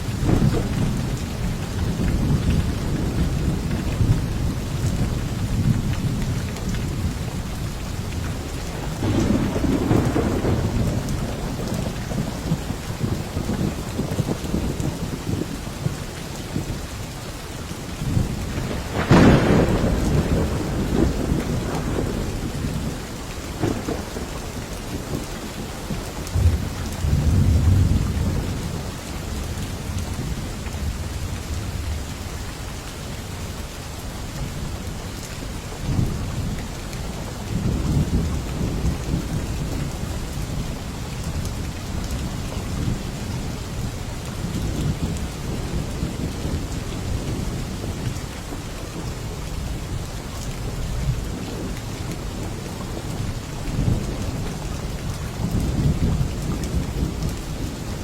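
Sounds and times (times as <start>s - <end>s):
low thunder rumbles: 0.0s - 17.0s, 18.0s - 32.4s, 34.4s - 58.0s
steady rain: 0.0s - 58.0s
thunderclap: 0.1s - 4.3s, 8.8s - 15.5s, 18.1s - 22.9s.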